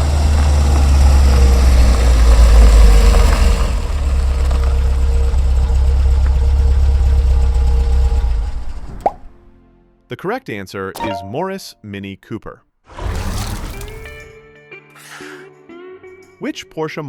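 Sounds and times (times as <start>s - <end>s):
car engine idling: 0.0s - 8.9s.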